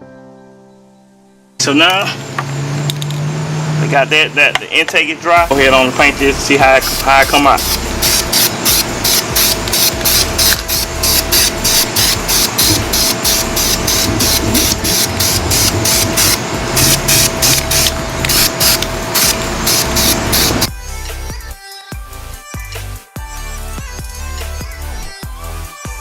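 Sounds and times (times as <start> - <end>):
background music with steady beat: 4.5 - 26.0
aerosol spray can hissing: 6.8 - 20.7.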